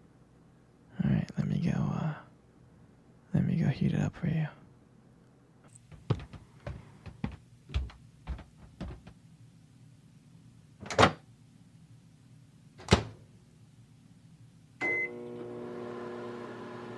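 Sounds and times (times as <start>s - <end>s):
footsteps: 5.6s - 9.2s
door opening and shutting: 10.8s - 11.2s, 12.8s - 13.2s.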